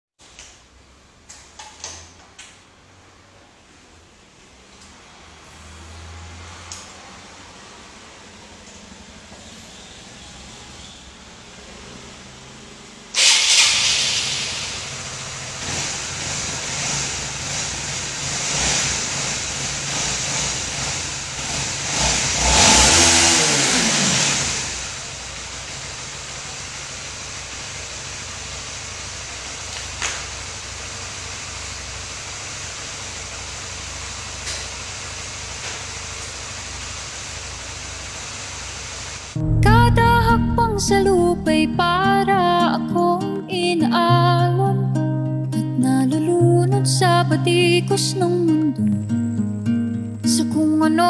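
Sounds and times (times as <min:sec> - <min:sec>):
motor vehicle passing: 0:04.9 - 0:25.9, 0:39.2 - 0:42.9.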